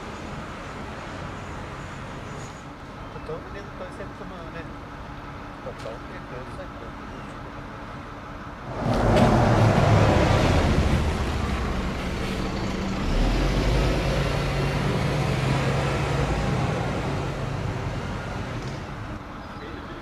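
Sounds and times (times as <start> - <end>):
large engine starting and running: 8.6 - 19.2.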